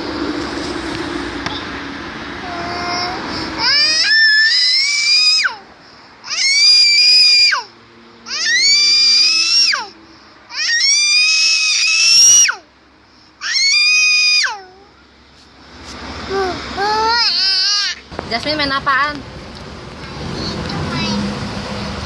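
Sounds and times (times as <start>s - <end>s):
child screaming: 2.4s - 5.7s, 6.3s - 7.7s, 8.3s - 12.7s, 13.4s - 14.8s, 16.3s - 18.0s.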